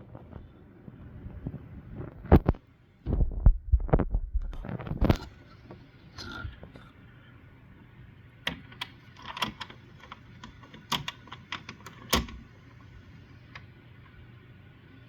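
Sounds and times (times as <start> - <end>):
sharp clicks and knocks: 8.5 - 12.4.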